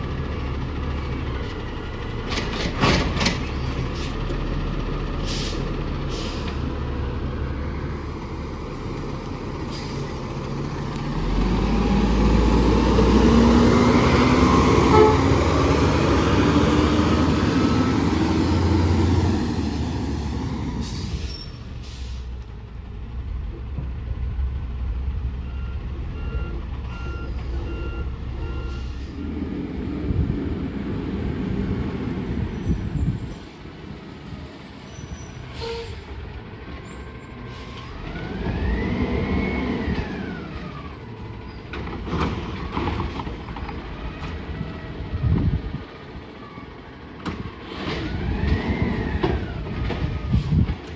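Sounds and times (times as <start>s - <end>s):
truck diesel engine revving: 0.0s - 22.7s, 36.1s - 46.3s
air brake hisses: 5.2s - 6.7s, 20.7s - 22.4s, 35.0s - 36.1s
reversing alarm beeping: 25.4s - 29.0s.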